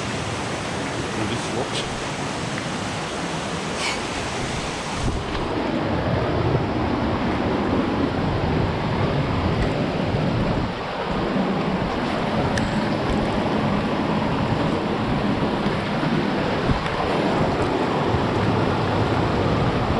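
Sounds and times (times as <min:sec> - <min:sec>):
waterfall rushing: 0:00.0 - 0:05.8.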